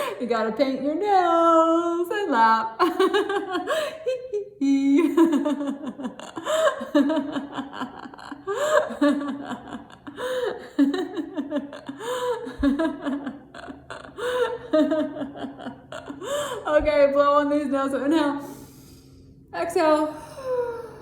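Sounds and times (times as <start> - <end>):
woman laughing: 2.7 - 17.3.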